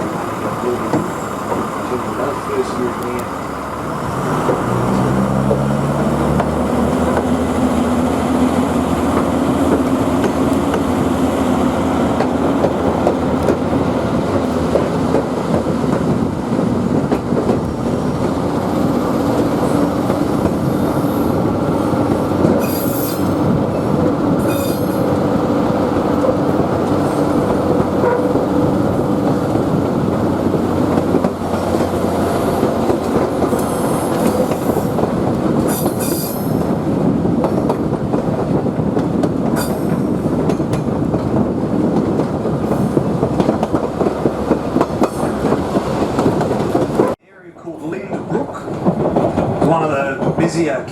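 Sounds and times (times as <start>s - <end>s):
rail motor engine drone: 0.0s - 47.2s
wheels rumbling on rails: 0.0s - 50.9s
high-pitched wheel screeches: 22.6s - 23.4s, 24.4s - 25.0s, 35.7s - 36.6s.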